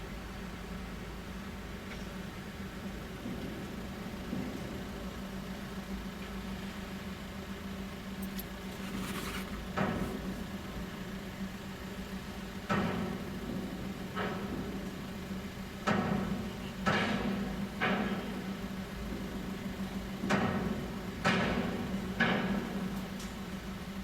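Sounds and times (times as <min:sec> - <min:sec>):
low vehicle hum: 0:00.0 - 0:12.5.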